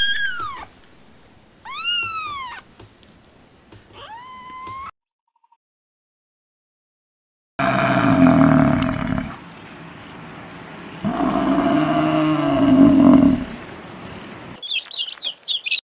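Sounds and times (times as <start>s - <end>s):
cow mooing: 7.6s - 9.4s, 11.0s - 13.8s.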